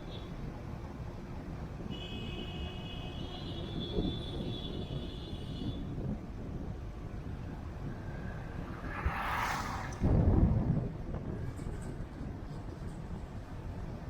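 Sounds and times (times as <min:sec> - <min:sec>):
car driving rumble: 0:05.7 - 0:13.9.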